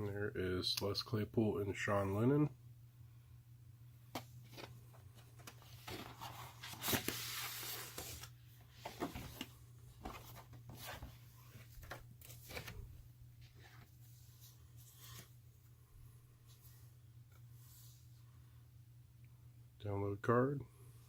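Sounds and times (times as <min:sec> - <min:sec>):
steady low hum: 0:00.0 - 0:21.0
paper and cardboard rustling: 0:04.2 - 0:15.4.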